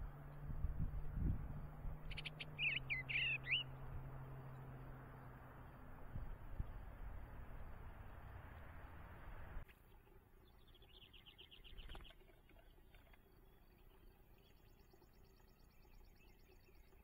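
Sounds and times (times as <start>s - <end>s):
rapid bird trill: 2.0s - 3.8s.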